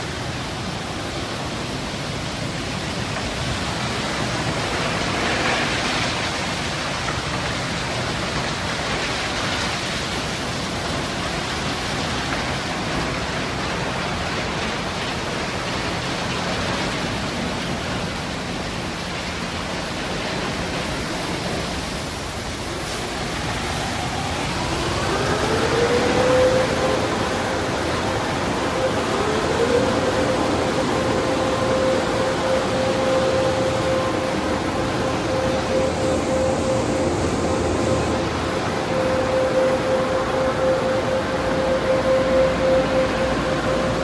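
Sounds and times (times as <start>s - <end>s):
car wash water spray hiss: 0.0s - 43.9s
pitched whine: 24.0s - 44.0s.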